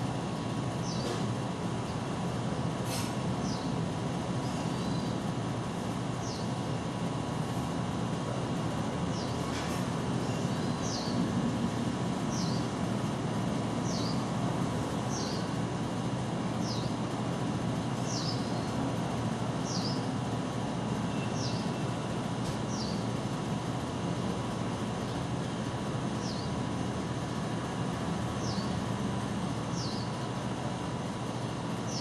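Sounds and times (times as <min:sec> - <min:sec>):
small bird chirping: 0:00.8 - 0:01.1, 0:06.2 - 0:06.5, 0:10.2 - 0:11.2, 0:12.3 - 0:12.7, 0:13.8 - 0:14.3, 0:15.0 - 0:15.6, 0:18.0 - 0:18.7, 0:19.6 - 0:20.1, 0:21.1 - 0:21.8, 0:29.7 - 0:30.2.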